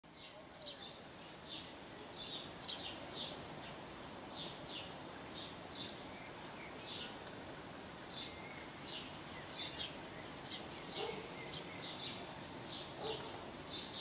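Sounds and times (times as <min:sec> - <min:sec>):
outdoor hiss: 0:00.1 - 0:14.0
bird chirping: 0:08.1 - 0:14.0.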